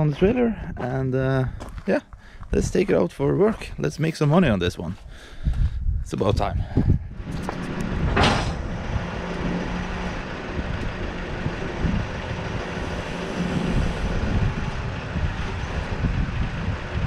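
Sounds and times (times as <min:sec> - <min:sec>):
excavator diesel engine running: 0:06.8 - 0:17.0
short whoosh: 0:06.9 - 0:10.2.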